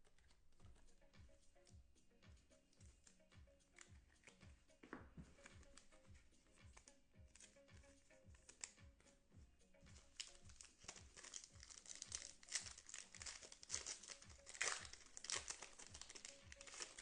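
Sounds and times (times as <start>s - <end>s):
plastic wrapper crinkling and tearing: 9.9s - 17.0s.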